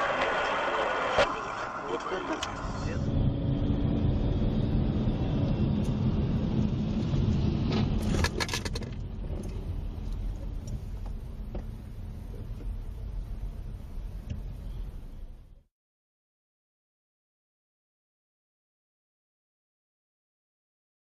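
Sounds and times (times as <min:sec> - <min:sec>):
car engine and road rumble: 0:00.0 - 0:15.7.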